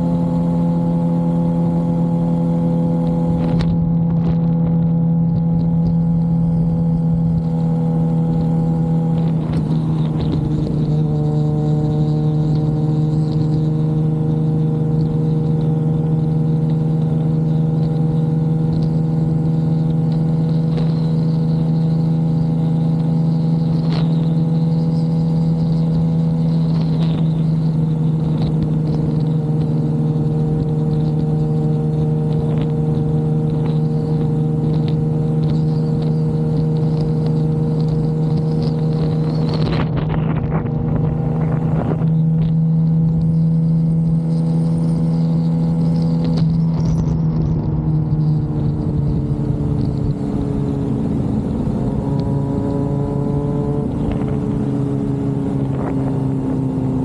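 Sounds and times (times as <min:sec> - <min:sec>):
motorcycle engine running: 0:00.0 - 0:57.0
wind rush: 0:38.7 - 0:43.3.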